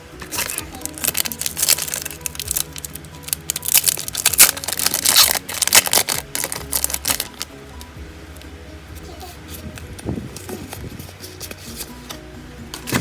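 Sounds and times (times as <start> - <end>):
background music: 0.0 - 13.0
foil wrappers crinkling: 0.2 - 7.5.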